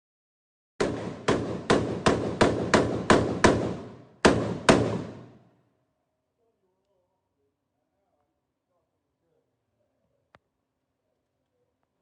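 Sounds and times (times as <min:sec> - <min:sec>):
rifle shots indoors: 0:00.8 - 0:05.8.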